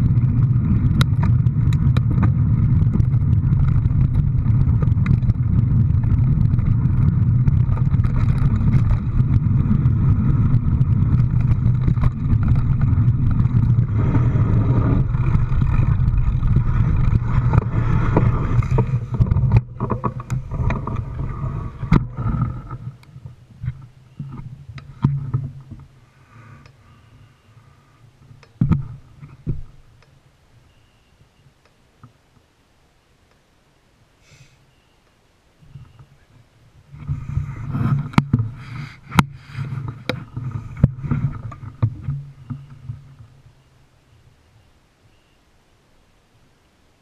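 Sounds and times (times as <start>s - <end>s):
vehicle engine rumbling: 0.0s - 32.6s, 34.2s - 45.7s
faint clicks: 26.6s - 26.8s.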